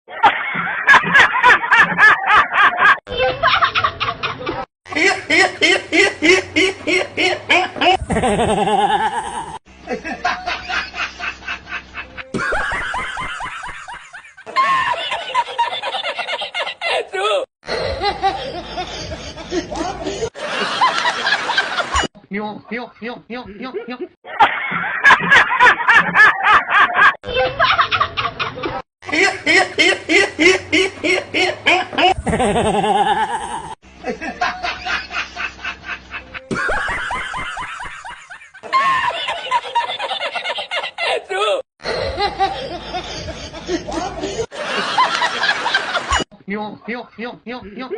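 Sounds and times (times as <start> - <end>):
pitched laughs: 0.1 - 22.1, 23.8 - 46.3.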